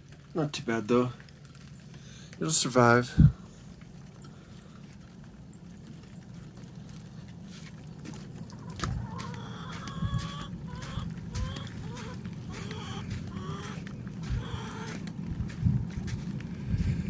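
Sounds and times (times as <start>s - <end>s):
chickens clucking: 8.1s - 15.8s.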